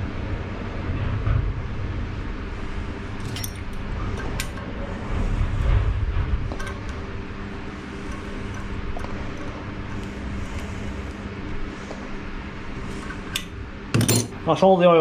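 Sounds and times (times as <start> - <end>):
low hum and rumble: 0.0 - 15.0
metal parts clinking: 3.2 - 4.6, 6.5 - 7.1, 12.9 - 14.4.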